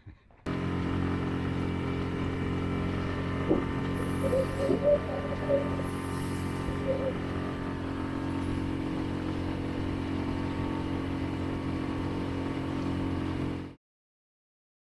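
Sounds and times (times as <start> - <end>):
outboard motor running: 0.4 - 13.8.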